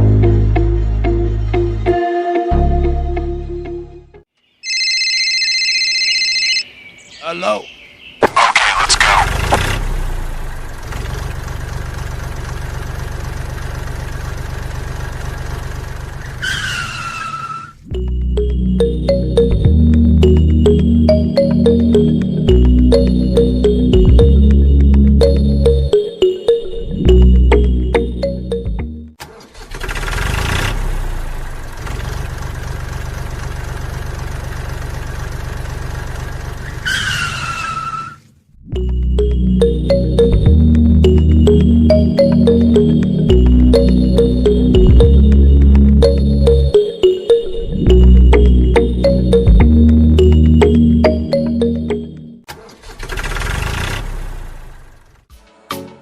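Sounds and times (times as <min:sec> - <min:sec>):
tractor engine idling: 0:08.4 - 0:16.4, 0:31.1 - 0:36.8
high falling tone: 0:38.6 - 0:52.4.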